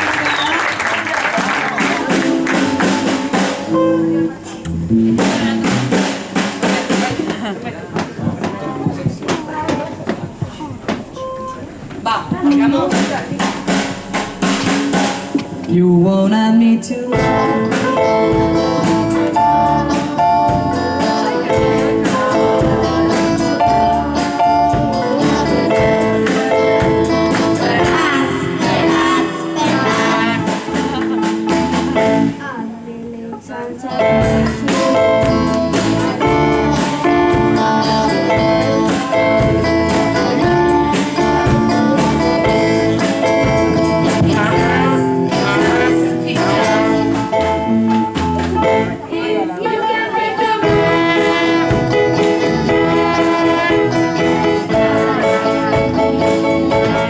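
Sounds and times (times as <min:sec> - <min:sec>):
drum kit: 0:00.0 - 0:16.4, 0:17.1 - 0:32.6, 0:33.9 - 0:49.1, 0:50.5 - 0:57.0
keyboard: 0:08.2 - 0:32.8, 0:33.8 - 0:57.0
electric guitar: 0:15.4 - 0:32.5, 0:33.9 - 0:49.1, 0:50.6 - 0:57.0
person singing: 0:15.7 - 0:57.0.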